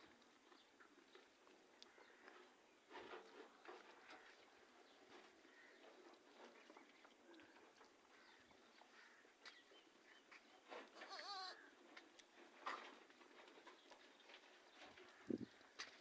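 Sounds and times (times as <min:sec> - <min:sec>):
goat bleating: 0:11.0 - 0:11.7.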